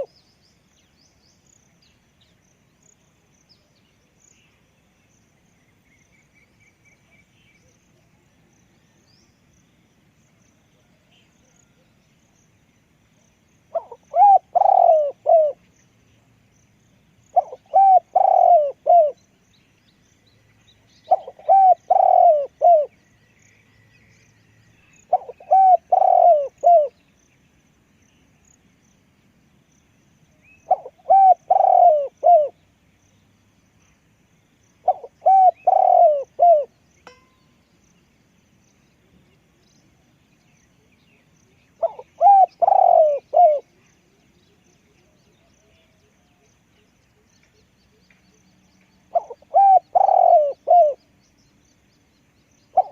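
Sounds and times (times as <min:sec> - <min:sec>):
dove cooing: 0:13.7 - 0:15.6, 0:17.4 - 0:19.2, 0:21.1 - 0:22.9, 0:25.1 - 0:27.0, 0:30.7 - 0:32.6, 0:34.8 - 0:36.7, 0:41.8 - 0:43.7, 0:49.1 - 0:51.0.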